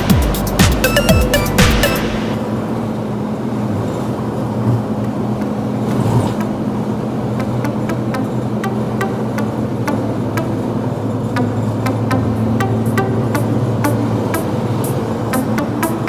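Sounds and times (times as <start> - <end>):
music with a beat: 0.0 - 2.4, 11.4 - 16.0
road noise: 0.0 - 16.0
vehicle engine hum: 0.0 - 16.0.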